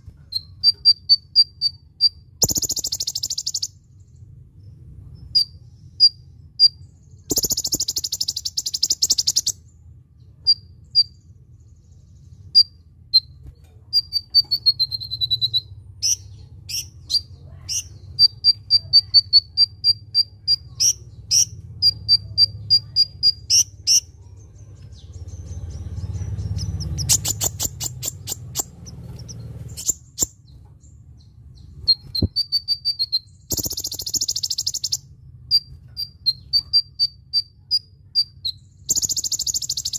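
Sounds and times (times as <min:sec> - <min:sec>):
bird calling high chips: 0:00.2 - 0:03.8, 0:06.0 - 0:09.6, 0:26.5 - 0:30.4, 0:31.9 - 0:39.9.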